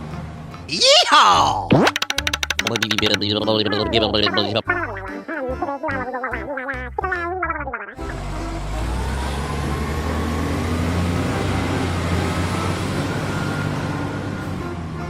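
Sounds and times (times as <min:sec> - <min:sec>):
large truck engine running: 0:00.0 - 0:00.7, 0:08.0 - 0:15.0.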